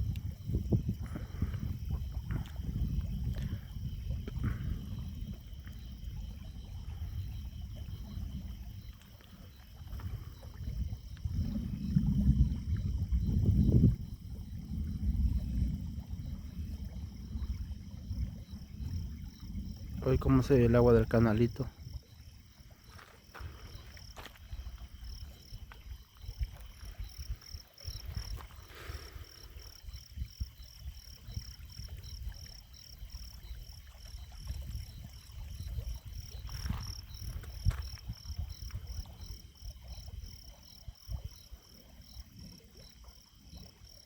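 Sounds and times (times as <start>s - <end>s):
night insects chirping: 0.0s - 44.0s
low rumble: 10.0s - 20.0s.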